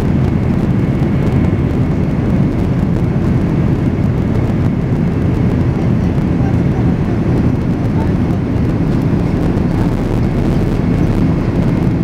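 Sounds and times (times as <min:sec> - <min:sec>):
jet engine rumble in cabin: 0:00.0 - 0:12.0.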